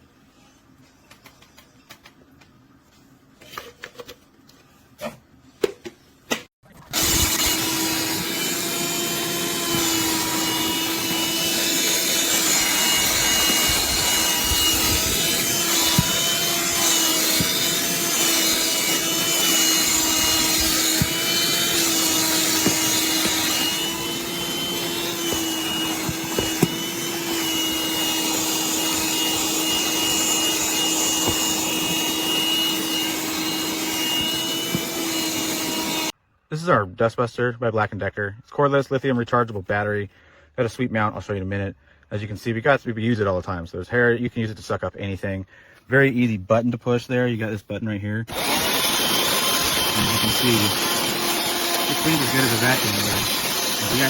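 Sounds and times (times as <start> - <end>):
handheld vacuum running: 6.9 - 36.1, 48.3 - 54.0.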